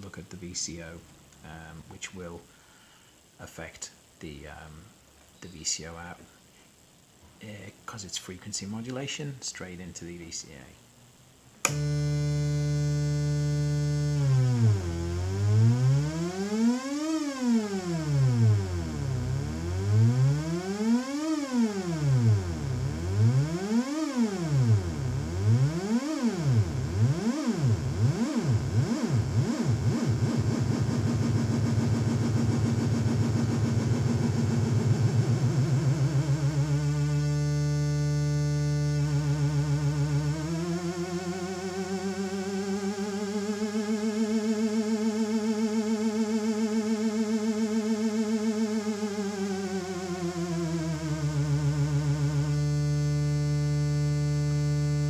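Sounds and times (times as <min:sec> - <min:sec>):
synthesizer tone warbling: 0:18.0 - 0:45.9.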